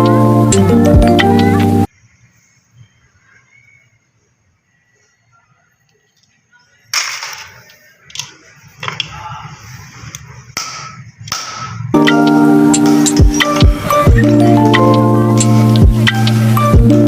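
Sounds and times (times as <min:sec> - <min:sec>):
music: 0:00.0 - 0:01.9, 0:12.0 - 0:17.0.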